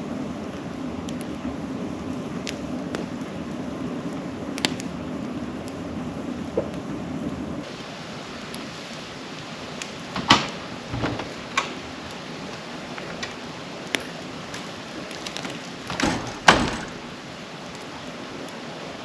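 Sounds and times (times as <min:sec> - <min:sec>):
campfire crackling and popping: 0:00.0 - 0:15.9, 0:16.8 - 0:19.0.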